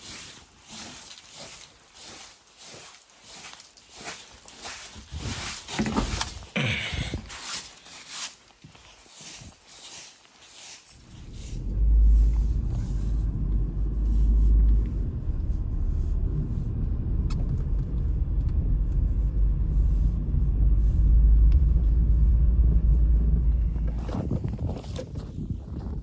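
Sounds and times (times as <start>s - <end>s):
blizzard wind buffeting microphone: 4.7s - 7.4s, 11.0s - 26.0s.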